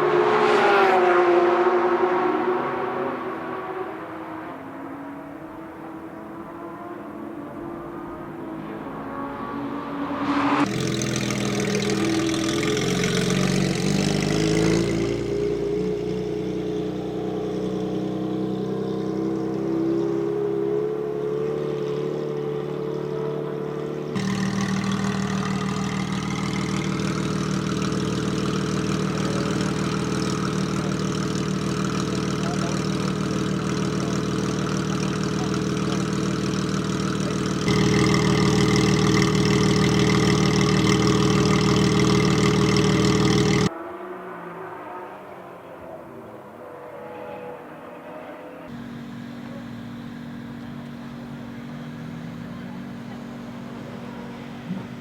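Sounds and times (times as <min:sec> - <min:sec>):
car engine idling: 0:10.2 - 0:43.7, 0:48.7 - 0:55.0.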